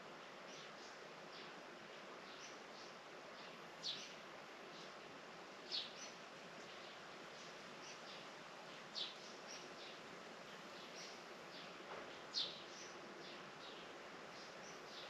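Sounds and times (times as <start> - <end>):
faint outdoor hiss: 0.0 - 15.0
small birds chirping: 0.3 - 15.0.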